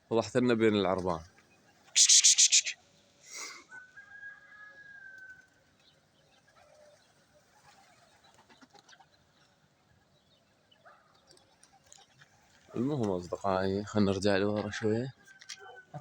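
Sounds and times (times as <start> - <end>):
whistled note: 2.0 - 2.8
faint bird chirps and clicks: 10.7 - 13.2, 15.2 - 15.9.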